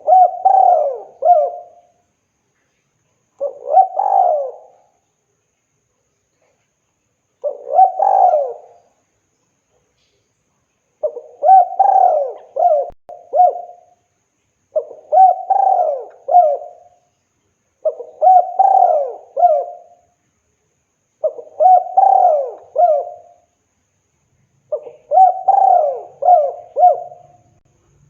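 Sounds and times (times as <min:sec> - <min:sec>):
dove cooing: 0:00.0 - 0:02.0, 0:03.4 - 0:05.0, 0:07.4 - 0:08.9, 0:11.0 - 0:14.0, 0:14.8 - 0:17.0, 0:17.8 - 0:20.0, 0:21.2 - 0:23.5, 0:24.7 - 0:27.6.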